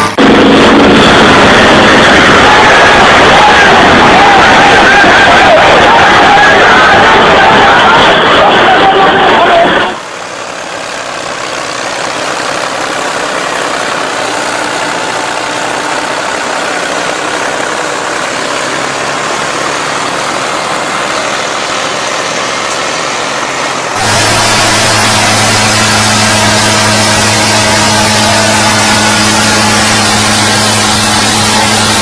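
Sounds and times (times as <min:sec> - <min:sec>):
tractor engine running: 0:00.0 - 0:32.0.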